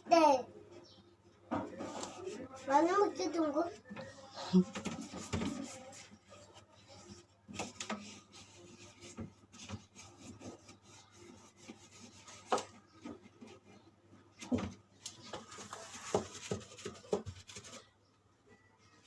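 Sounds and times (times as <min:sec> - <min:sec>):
scrubbing a surface: 0:04.6 - 0:13.9, 0:15.2 - 0:17.9.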